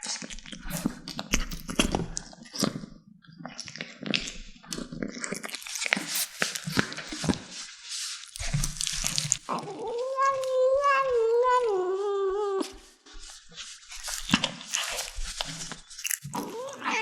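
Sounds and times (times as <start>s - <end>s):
kittens chewing food: 0.0s - 17.0s
kitten meowing: 9.7s - 12.7s, 16.4s - 17.0s.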